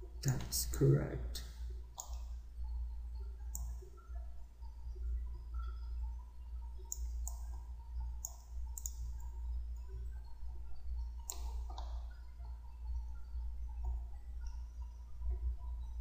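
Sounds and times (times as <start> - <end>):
steady low hum: 0.0 - 16.0
computer mouse clicking: 1.4 - 2.3, 3.5 - 3.8, 6.7 - 10.0, 11.2 - 12.2.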